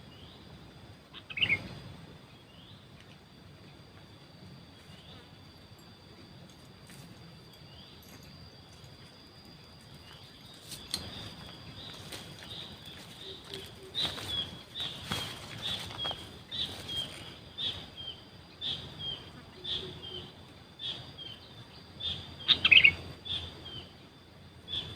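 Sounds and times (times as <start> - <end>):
bird chirping: 1.2 - 2.9, 9.5 - 24.9.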